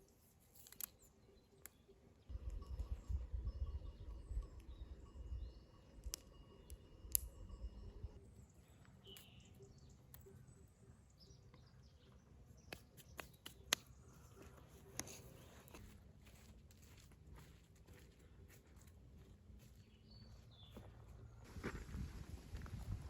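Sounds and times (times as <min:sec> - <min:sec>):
bird chirps: 0:00.9 - 0:15.8.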